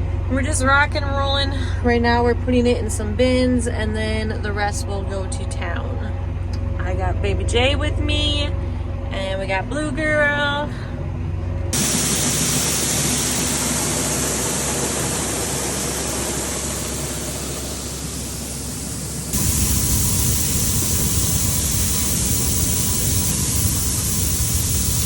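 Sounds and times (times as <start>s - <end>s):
tractor running: 0.0s - 25.0s.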